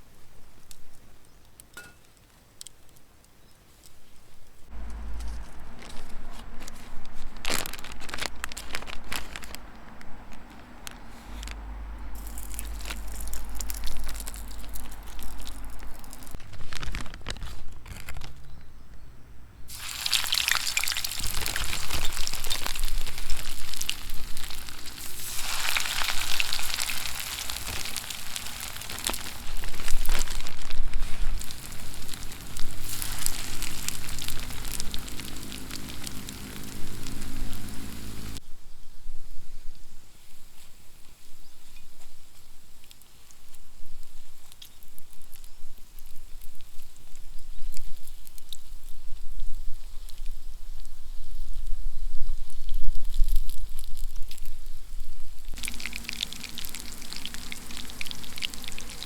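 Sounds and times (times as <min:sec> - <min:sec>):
food sizzling in a pan: 0:19.7 - 0:38.4, 0:55.6 - 0:59.0.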